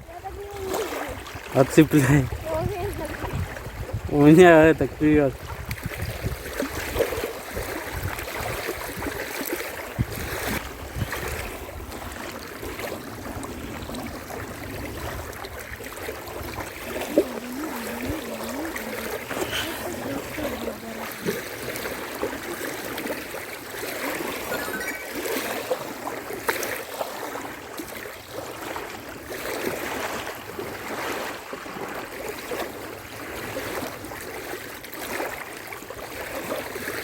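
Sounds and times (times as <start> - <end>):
wind noise: 0.0 - 22.0
small waves lapping against bank: 0.0 - 37.0.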